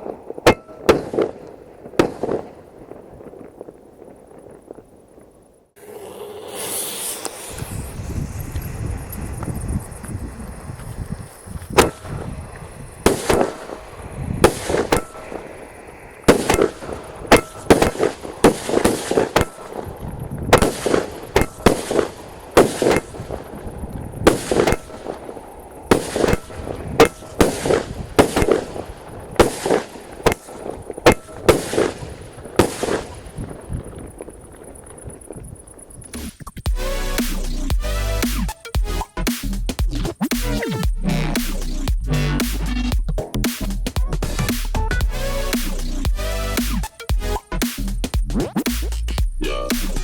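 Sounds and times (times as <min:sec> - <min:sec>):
firework cake bangs with crackle: 0:00.0 - 0:05.0, 0:11.6 - 0:35.5.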